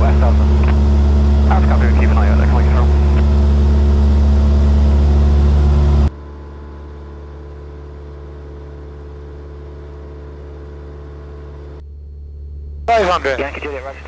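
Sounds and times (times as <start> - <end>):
small plane engine drone: 0.0 - 6.1, 12.9 - 14.0
quiet steady hum: 12.9 - 14.0.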